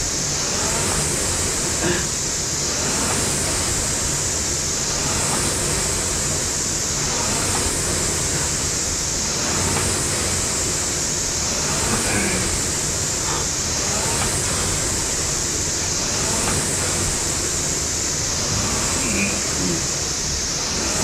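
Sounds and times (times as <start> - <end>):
rowing machine fan whooshing: 0.0 - 21.0.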